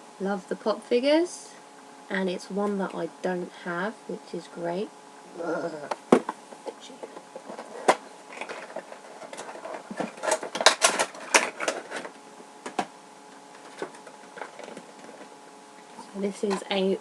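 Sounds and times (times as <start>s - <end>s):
packaging crinkling and clicking: 7.5s - 15.3s.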